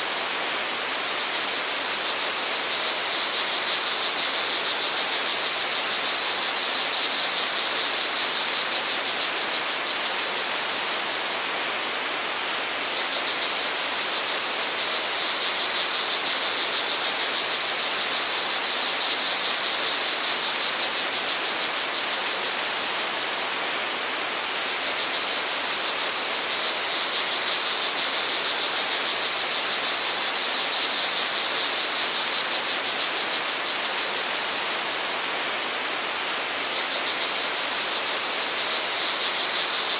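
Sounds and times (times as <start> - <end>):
stream rushing: 0.0 - 39.9
crickets trilling: 0.1 - 11.4, 12.8 - 23.4, 24.5 - 35.2, 36.6 - 39.9.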